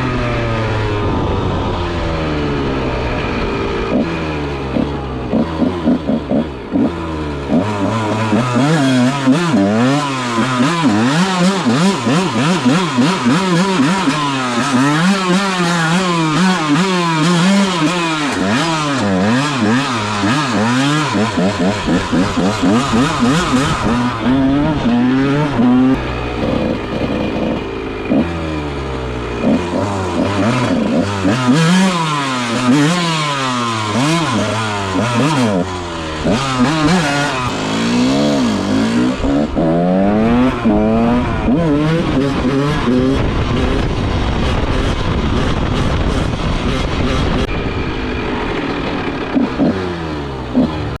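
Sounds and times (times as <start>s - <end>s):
dirt bike engine revving: 0.0s - 51.0s.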